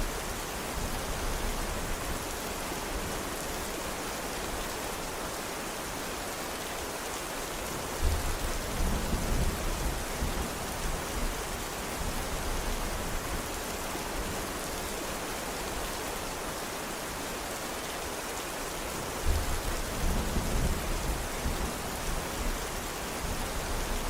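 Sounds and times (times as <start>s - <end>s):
heavy rain falling: 0.0s - 24.0s
low rumble of thunder: 19.2s - 24.0s.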